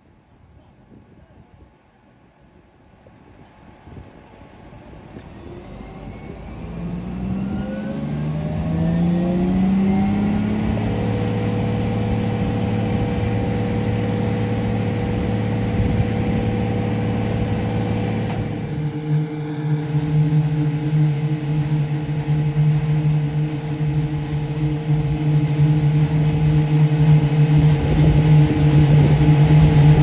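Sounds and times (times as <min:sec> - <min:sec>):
vehicle engine accelerating: 0:05.2 - 0:30.0.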